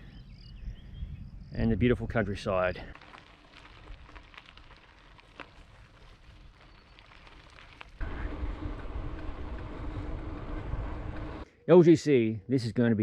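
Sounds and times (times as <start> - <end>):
wind on microphone: 0.0 - 2.3
bike tyres rolling on gravel: 1.9 - 11.4.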